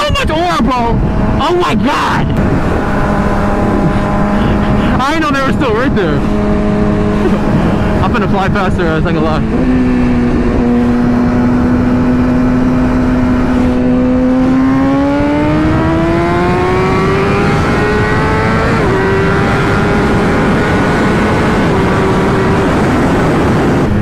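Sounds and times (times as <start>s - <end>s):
steady rush of noise: 0.0s - 13.9s
motorcycle engine accelerating: 0.0s - 24.0s.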